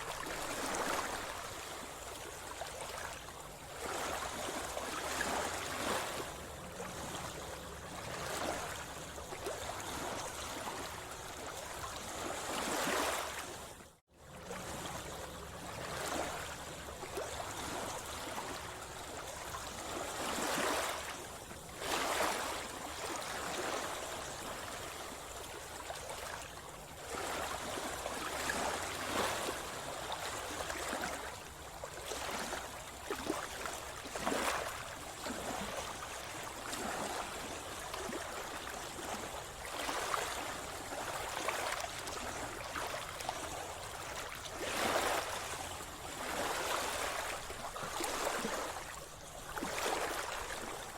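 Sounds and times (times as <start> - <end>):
steady water wash: 0.0 - 13.5
sea water splashing: 0.0 - 13.6, 14.5 - 50.9.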